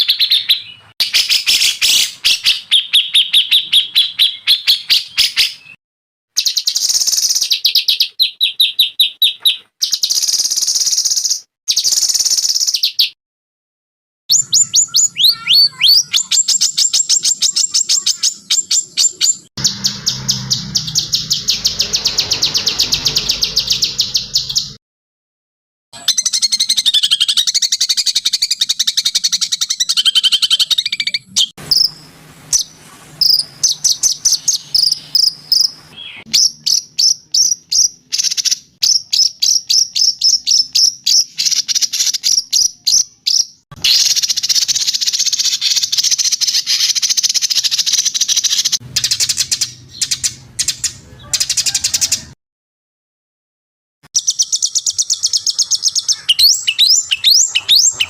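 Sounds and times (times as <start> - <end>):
songbird trills and chirps: 14.3 - 24.8, 32.6 - 52.0, 54.2 - 58.0.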